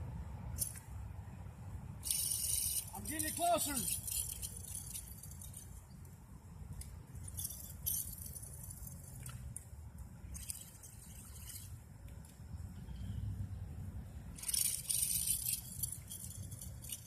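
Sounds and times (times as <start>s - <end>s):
low steady rumble: 0.0s - 17.0s
fishing reel rattling: 2.0s - 5.8s, 7.1s - 9.3s, 10.3s - 11.8s, 14.4s - 17.0s.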